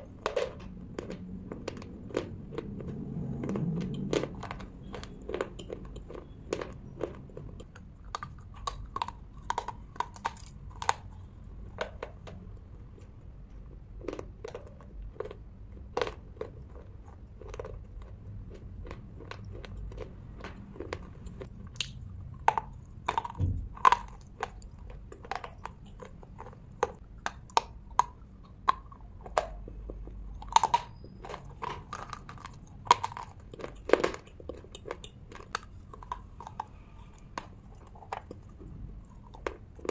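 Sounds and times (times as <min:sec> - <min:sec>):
crunching brittle sticks: 0:00.0 - 0:39.9.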